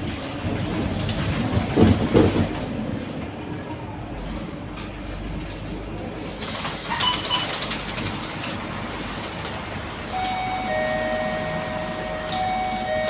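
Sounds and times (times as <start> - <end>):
bus engine and road noise: 0.0 - 13.0
two-note electronic chime: 10.2 - 13.0.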